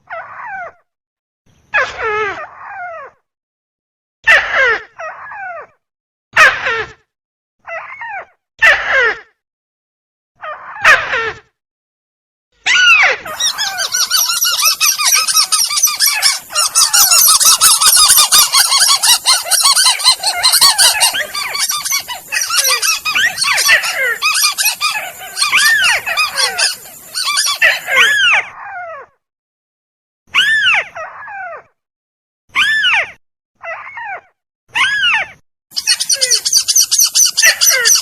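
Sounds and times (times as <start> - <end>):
rail bird calls: 13.3 - 28.2, 35.8 - 38.0.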